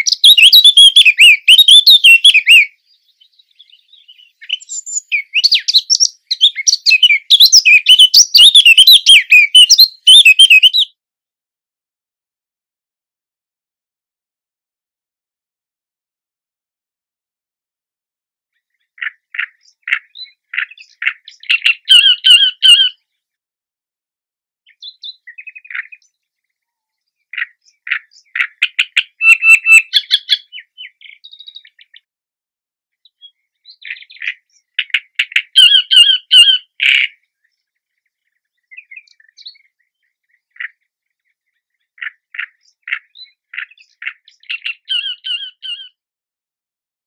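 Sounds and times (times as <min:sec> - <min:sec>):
warbler singing: 0:00.0 - 0:10.9, 0:18.6 - 0:23.1, 0:24.7 - 0:32.1, 0:33.0 - 0:46.0.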